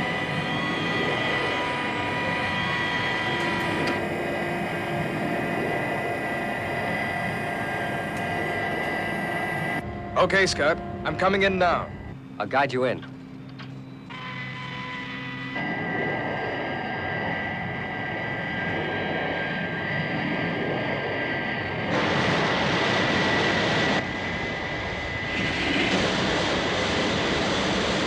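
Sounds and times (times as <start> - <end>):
jet engine whine and roar: 0.0 - 28.0.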